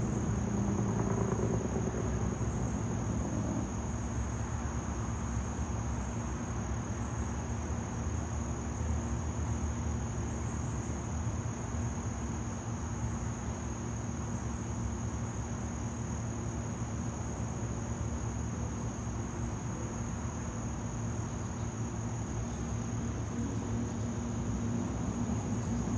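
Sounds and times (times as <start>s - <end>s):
high-pitched insect trill: 0.0s - 25.9s
low background rumble: 23.0s - 25.9s.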